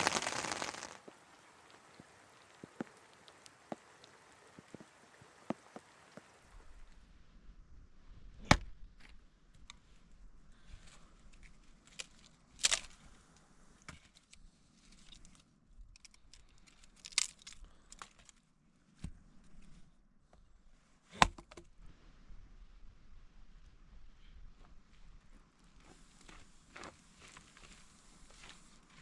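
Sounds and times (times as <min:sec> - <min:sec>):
crackling and rustling: 0:00.0 - 0:06.7.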